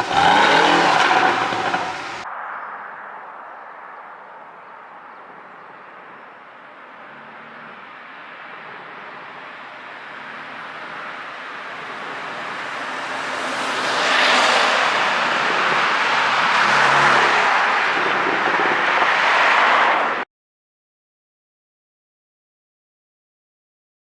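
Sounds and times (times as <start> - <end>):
sports car engine and exhaust: 0.0 - 20.2.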